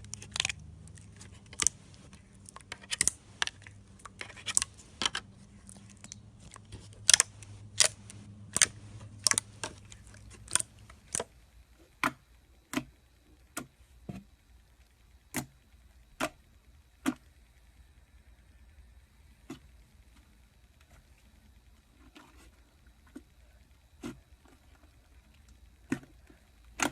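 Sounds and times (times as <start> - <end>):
low background hum: 0.0 - 26.9.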